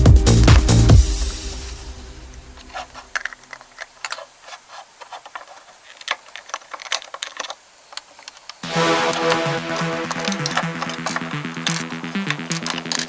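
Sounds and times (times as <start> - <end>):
background music: 0.0 - 2.8, 8.6 - 13.0
plastic bricks clicking together: 2.6 - 13.0.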